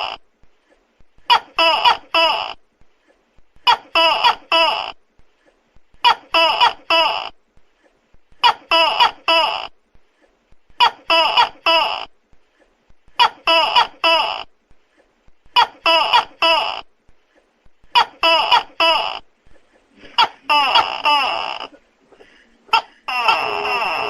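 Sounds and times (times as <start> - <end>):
gecko calling: 22.7 - 24.0.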